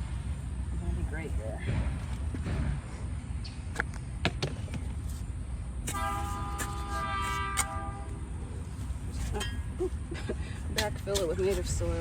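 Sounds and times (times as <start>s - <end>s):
horn steady note: 5.9s - 8.3s.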